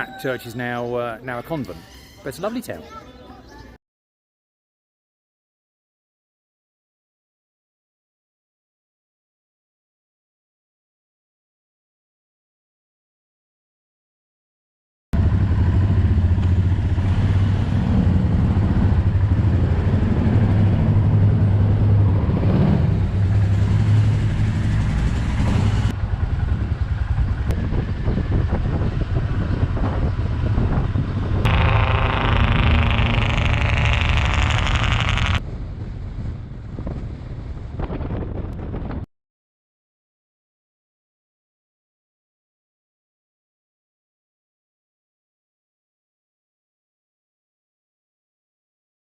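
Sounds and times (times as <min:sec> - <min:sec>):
motorcycle engines running: 0:15.2 - 0:35.4.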